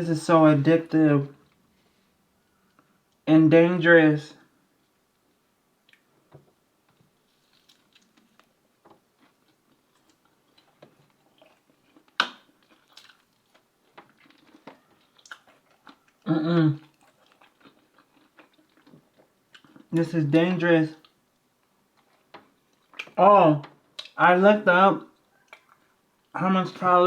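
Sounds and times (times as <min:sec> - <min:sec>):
person chewing: 0:07.2 - 0:20.0, 0:21.0 - 0:23.2, 0:23.9 - 0:24.2, 0:25.1 - 0:26.4.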